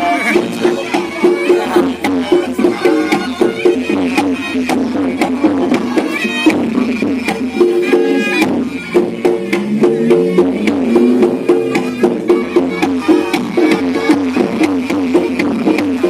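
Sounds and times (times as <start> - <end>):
drum and gong-chime strikes: 8.3 - 15.7.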